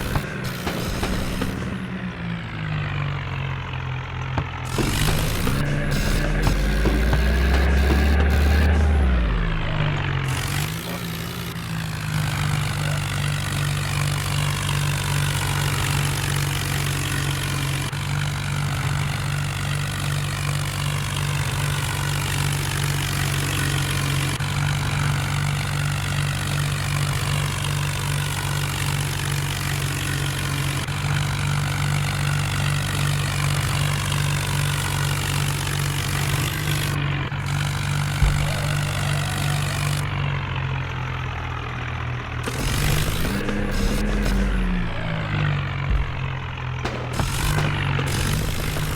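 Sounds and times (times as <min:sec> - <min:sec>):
tractor engine droning: 0:00.0 - 0:48.9
brief thump: 0:45.9 - 0:48.0.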